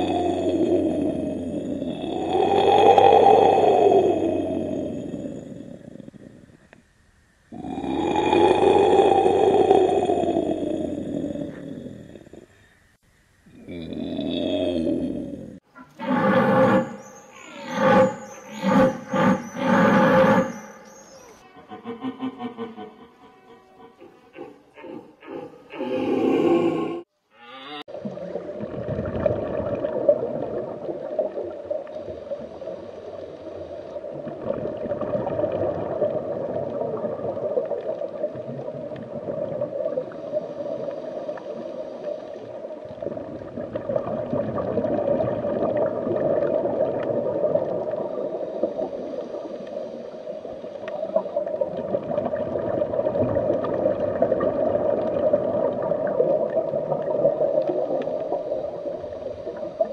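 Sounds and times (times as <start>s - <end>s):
underwater water gurgling: 0.0s - 6.6s, 7.5s - 12.5s, 27.9s - 59.9s.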